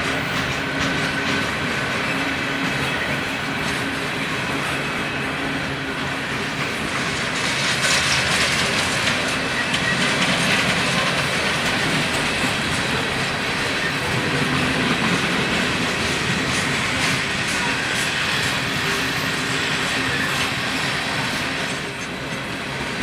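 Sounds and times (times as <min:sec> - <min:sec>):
freight train wheels rumbling: 0:00.0 - 0:23.0
wheels clicking over rail joints: 0:06.4 - 0:23.0.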